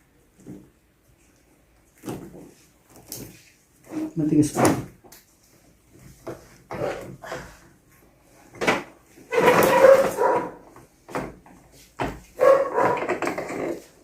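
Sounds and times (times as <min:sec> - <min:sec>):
dog barking: 0:09.3 - 0:10.6, 0:12.4 - 0:13.2.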